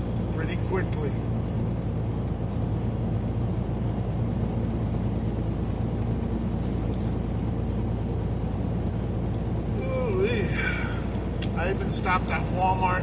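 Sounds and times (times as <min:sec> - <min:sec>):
truck cab road noise drone: 0:00.0 - 0:13.0.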